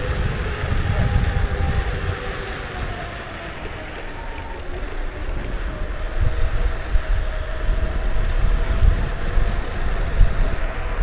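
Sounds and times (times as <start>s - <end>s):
electric motor whine: 0.0s - 11.0s
wind buffeting microphone: 0.0s - 11.0s.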